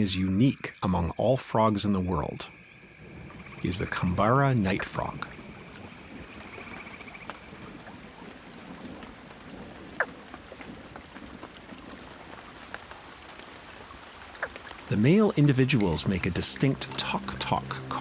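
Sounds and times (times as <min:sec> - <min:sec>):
insect trill: 0:00.0 - 0:08.3
running water hiss: 0:00.0 - 0:18.0
frog call: 0:02.1 - 0:10.8.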